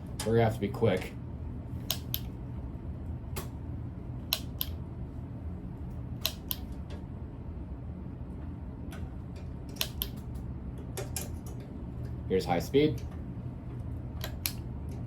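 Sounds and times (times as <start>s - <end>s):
ceiling fan humming: 0.0s - 15.0s
sharp clicks: 1.8s - 2.3s, 4.3s - 4.8s, 9.8s - 10.2s, 14.2s - 14.6s.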